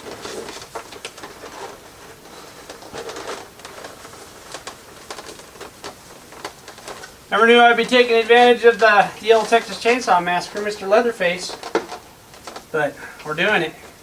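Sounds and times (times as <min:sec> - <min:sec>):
cloth rustling: 0:00.0 - 0:14.0
plastic parts clicking and tapping: 0:11.5 - 0:13.3.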